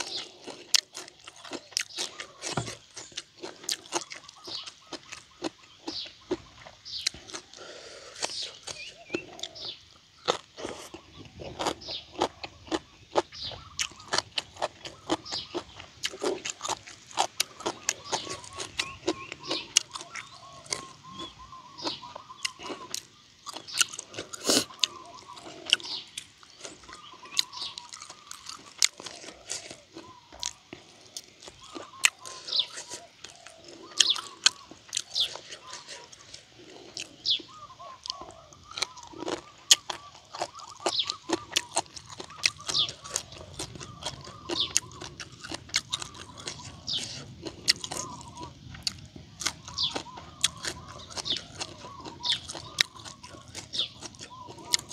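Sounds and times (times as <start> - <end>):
person chewing and crunching: 0.0 - 54.9.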